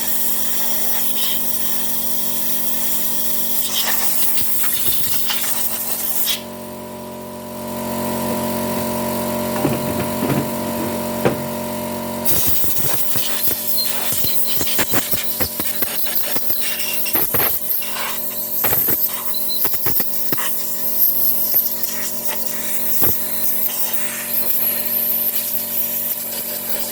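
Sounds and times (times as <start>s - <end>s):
air compressor motor humming: 6.4s - 26.7s
compressed air hissing: 12.3s - 26.9s.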